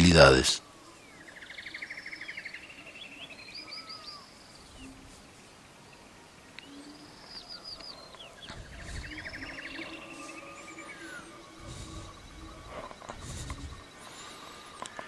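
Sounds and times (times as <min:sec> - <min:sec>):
birds chirping and whistling: 0:00.9 - 0:05.0, 0:06.6 - 0:15.0
buzzy bird trill: 0:08.0 - 0:14.7.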